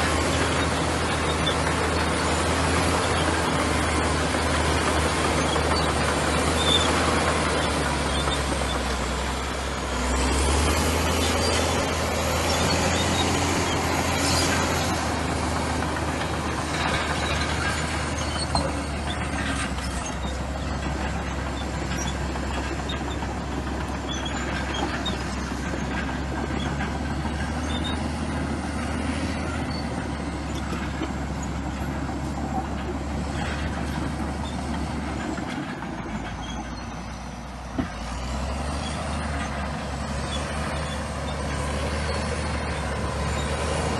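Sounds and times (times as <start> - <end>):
bulldozer diesel engine running: 0.0 - 43.9
small clicks and squeaks: 16.0 - 28.2, 28.8 - 37.4.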